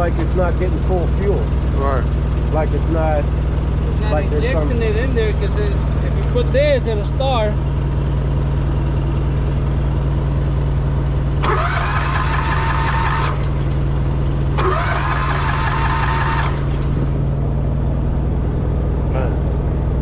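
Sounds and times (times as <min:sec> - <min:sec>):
low engine idle: 0:00.0 - 0:20.0
starter motor whirring: 0:03.2 - 0:17.4.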